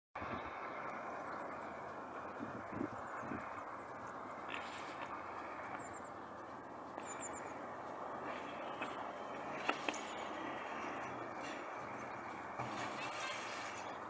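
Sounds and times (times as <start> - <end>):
distant tractor and hay baler: 0.2 - 14.0.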